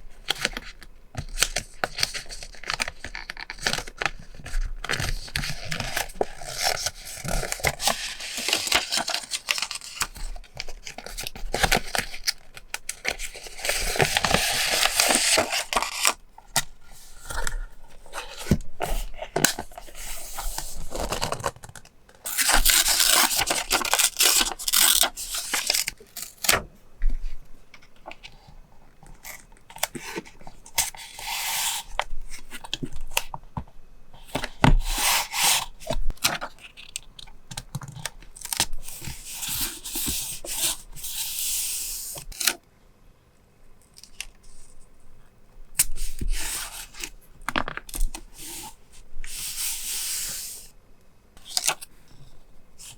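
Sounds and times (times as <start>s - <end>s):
paper tearing and rubbing: 22.3s - 25.9s.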